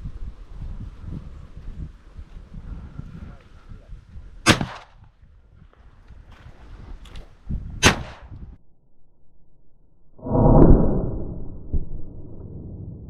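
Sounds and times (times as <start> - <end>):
shotgun shot: 4.4 - 5.0, 7.8 - 8.4
deep boom: 10.2 - 13.0.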